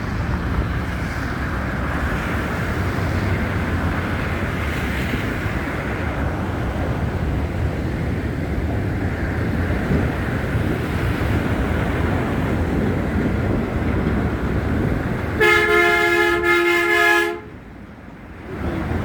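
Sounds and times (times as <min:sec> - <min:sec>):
traffic rumble: 0:00.0 - 0:19.0
wind rumble: 0:00.0 - 0:19.0
vehicle horn two-tone blast: 0:15.4 - 0:17.6.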